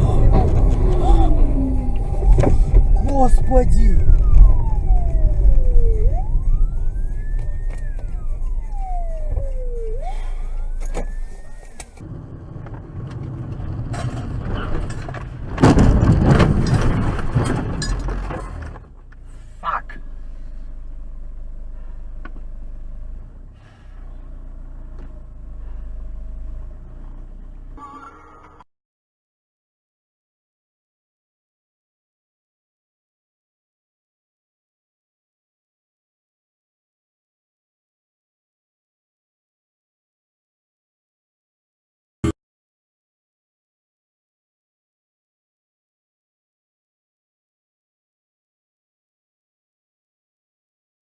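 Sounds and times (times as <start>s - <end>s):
emergency vehicle siren wailing: 0.0s - 15.0s
low road rumble: 0.0s - 28.7s.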